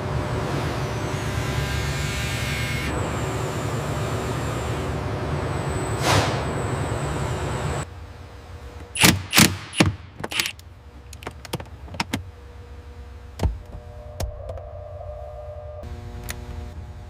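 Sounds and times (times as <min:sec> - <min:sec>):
steady low hum: 0:00.0 - 0:17.0
sharp clicks and knocks: 0:08.9 - 0:12.2.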